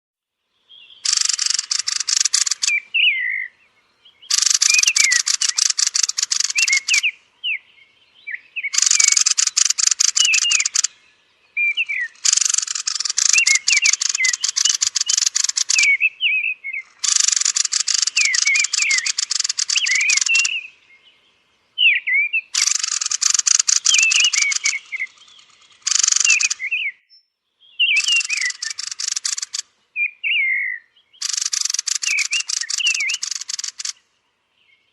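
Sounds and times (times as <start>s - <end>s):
bird harsh rapid chattering: 1.0s - 2.8s, 4.3s - 7.1s, 8.7s - 11.0s, 11.8s - 16.1s, 16.8s - 20.7s, 22.5s - 26.8s, 27.9s - 29.7s, 31.2s - 34.0s.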